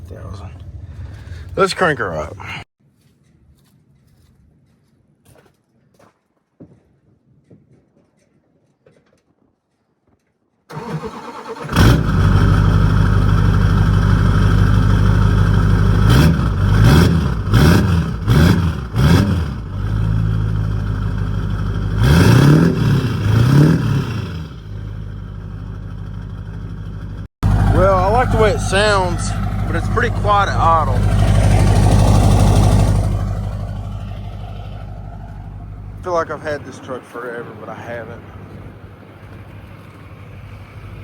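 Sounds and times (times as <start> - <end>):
diesel engine idling: 10.7 - 19.0, 19.6 - 22.3, 24.3 - 39.2
diesel engine cranking and starting: 10.7 - 36.7
diesel engine revving: 10.7 - 38.8.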